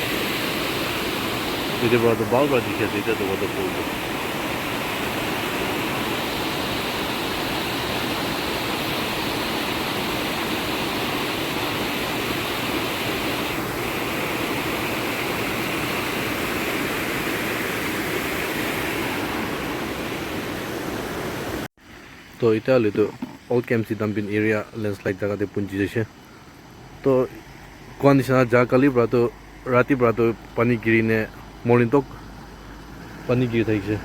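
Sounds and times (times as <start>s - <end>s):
waterfall rushing: 0.0s - 21.7s.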